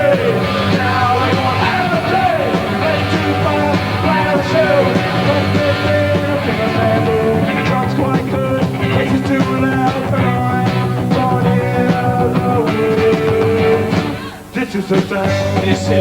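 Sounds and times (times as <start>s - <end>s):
steady drum hits: 0.0s - 14.2s
bass guitar: 0.0s - 14.4s, 15.2s - 16.0s
electric guitars: 0.0s - 16.0s.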